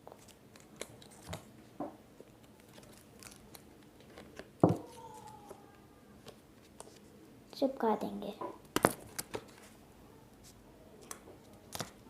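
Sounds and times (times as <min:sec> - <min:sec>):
paper rustling and clicking: 0:02.2 - 0:05.6, 0:08.8 - 0:09.7, 0:11.0 - 0:12.0.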